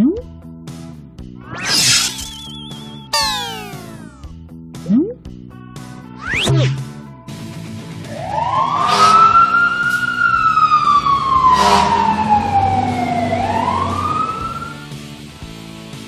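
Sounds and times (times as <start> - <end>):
short whooshes: 1.5 - 2.5
cartoon siren wail: 2.0 - 4.2, 8.2 - 14.9.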